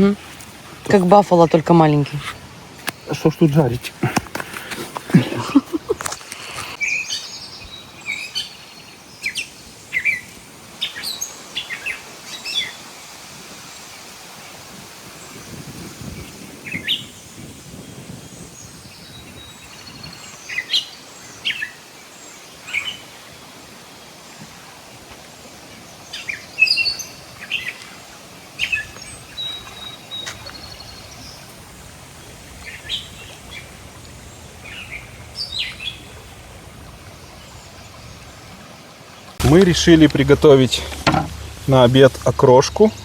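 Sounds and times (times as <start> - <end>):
faint outdoor hiss: 0.0 - 43.0
birds chirping: 0.8 - 12.9, 25.8 - 43.0.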